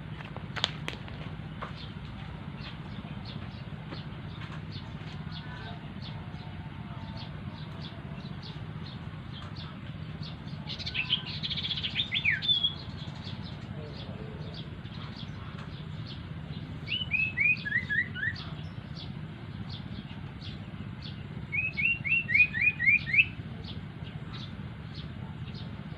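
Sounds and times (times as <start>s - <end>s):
steady low hum: 0.0s - 25.9s
bird whistled song: 10.7s - 13.4s, 16.8s - 18.7s, 21.5s - 23.4s.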